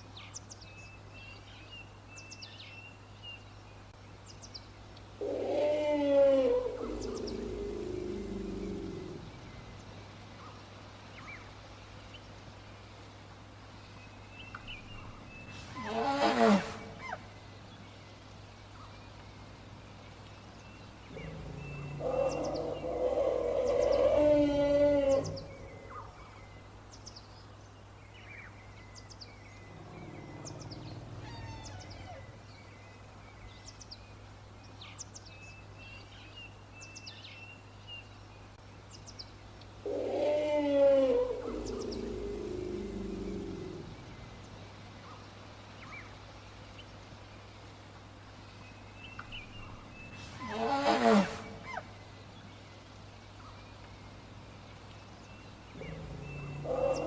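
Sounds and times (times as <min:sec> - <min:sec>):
elephants calling: 0:15.6 - 0:17.2, 0:21.1 - 0:26.2, 0:29.6 - 0:32.4, 0:39.8 - 0:44.3, 0:49.6 - 0:51.9, 0:55.7 - 0:57.0
small birds chirping: 0:16.7 - 0:40.4, 0:41.1 - 0:50.7, 0:51.3 - 0:57.0.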